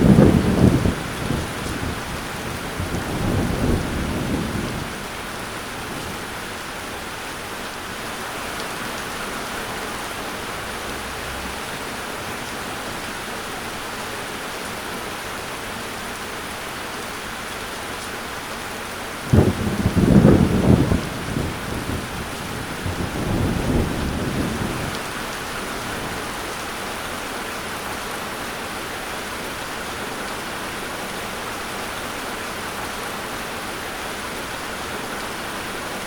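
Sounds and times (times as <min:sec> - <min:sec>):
low thunder rumble: 0:00.0 - 0:06.2, 0:19.3 - 0:25.2
steady rain falling: 0:00.0 - 0:36.0.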